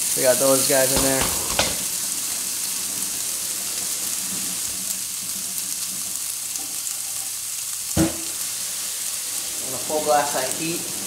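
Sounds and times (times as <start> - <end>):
food sizzling in a frying pan: 0.0 - 11.0
sharp knock: 0.9 - 2.0.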